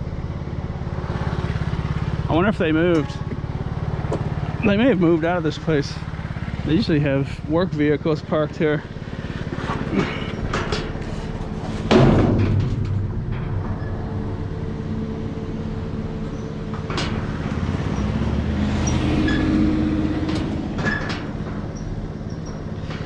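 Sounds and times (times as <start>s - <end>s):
vehicle engine idling: 0.0s - 23.0s
loud thump: 11.9s - 13.8s.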